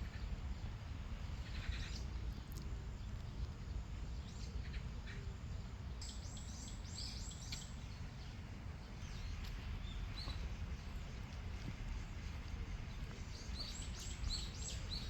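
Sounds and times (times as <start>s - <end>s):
small birds chirping: 6.0s - 15.0s
steady low rumble: 7.7s - 15.0s.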